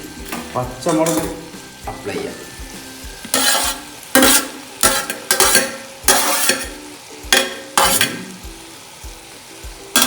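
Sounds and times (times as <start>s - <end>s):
onions sizzling in oil: 0.0s - 10.0s
spoon scraping a pan: 0.3s - 1.6s, 3.2s - 8.4s.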